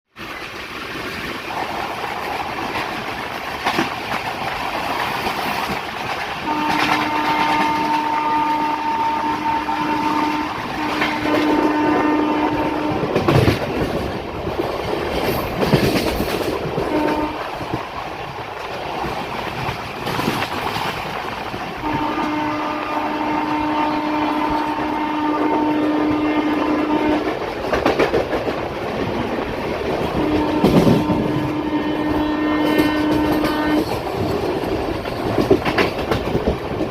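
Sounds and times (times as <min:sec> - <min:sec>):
wheels clicking over rail joints: 0:00.2 - 0:22.9, 0:24.4 - 0:36.9
train rumble: 0:00.2 - 0:36.9
train horn blasts: 0:06.4 - 0:13.4, 0:16.8 - 0:17.5, 0:21.8 - 0:27.4, 0:30.2 - 0:34.0.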